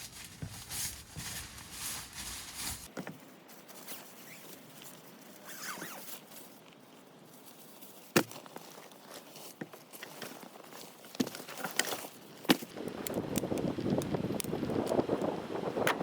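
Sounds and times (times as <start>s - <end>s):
faint rustling and handling: 0.0s - 12.5s.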